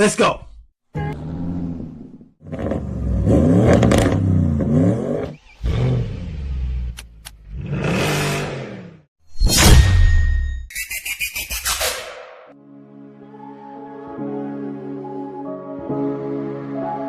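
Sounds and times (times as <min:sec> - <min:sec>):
car engine revving: 0:01.1 - 0:09.0.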